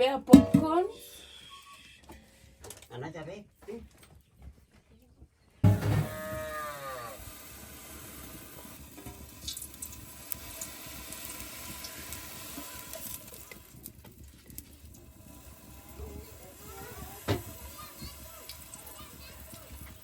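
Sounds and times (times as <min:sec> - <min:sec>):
steady hiss: 0:05.6 - 0:20.0
cow mooing: 0:05.7 - 0:07.2.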